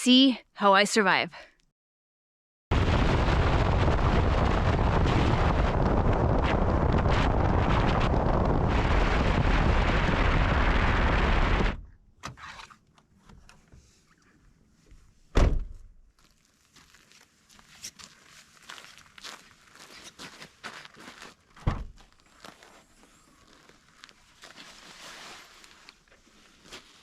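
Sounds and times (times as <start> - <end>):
wind buffeting microphone: 2.8 - 11.8
loud thump: 15.4 - 16.0, 21.6 - 22.0.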